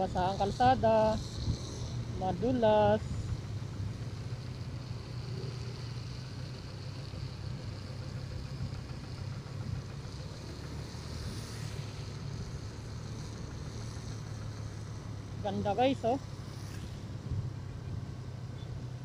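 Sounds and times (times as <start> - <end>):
motorcycle engine at low revs: 0.0 - 19.0
tyres hissing on wet road: 10.1 - 15.2, 16.3 - 17.2.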